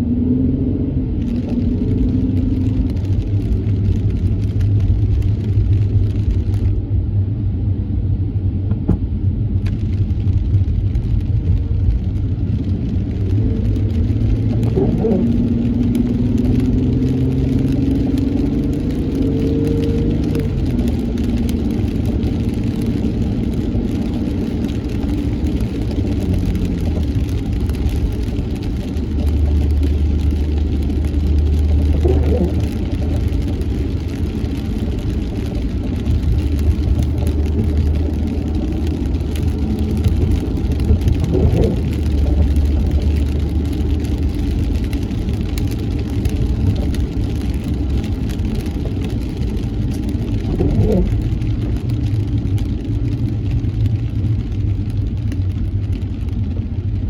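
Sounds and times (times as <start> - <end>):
car engine and tyre rumble: 0.0 - 57.0
windshield wiper sweeping: 9.8 - 17.8, 19.9 - 57.0.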